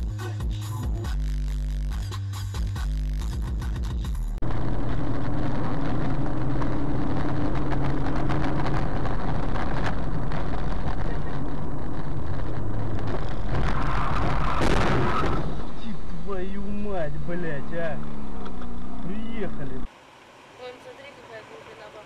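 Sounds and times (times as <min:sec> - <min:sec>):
car engine running: 0:00.0 - 0:22.0
road and wind noise: 0:04.4 - 0:22.0.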